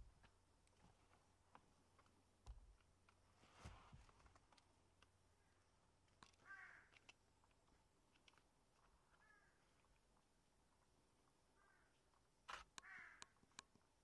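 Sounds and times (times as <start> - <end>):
faint short bird calls: 6.4 - 7.0, 9.0 - 9.9, 11.5 - 13.4
soft clicks: 12.4 - 13.9.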